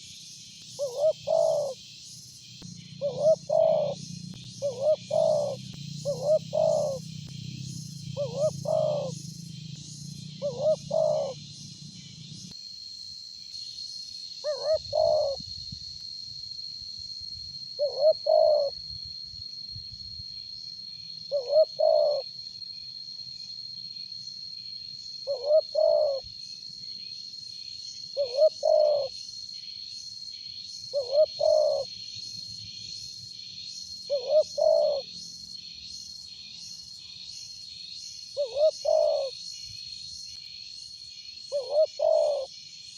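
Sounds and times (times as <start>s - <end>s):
dove cooing: 0.8s - 1.8s, 3.0s - 7.1s, 8.1s - 9.2s, 10.3s - 11.4s, 14.4s - 15.4s, 17.8s - 18.7s, 21.3s - 22.2s, 25.3s - 26.2s, 28.2s - 29.1s, 30.9s - 31.9s, 34.1s - 35.1s, 38.4s - 39.3s, 41.5s - 42.5s.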